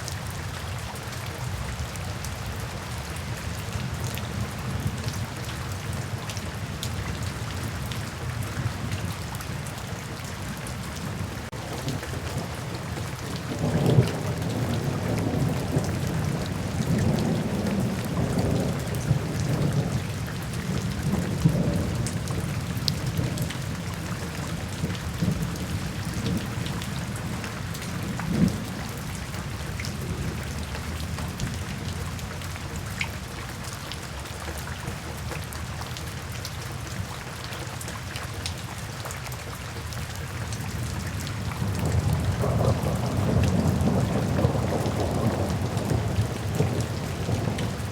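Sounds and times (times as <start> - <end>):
heavy rain with drips: 0.0 - 47.9
rolling thunder: 11.5 - 32.1, 41.6 - 47.9.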